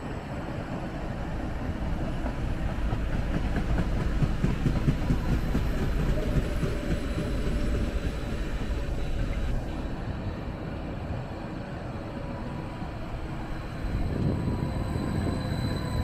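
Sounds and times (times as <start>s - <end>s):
train rumbling past: 0.0s - 16.0s
wheels clattering on rails: 1.9s - 9.7s.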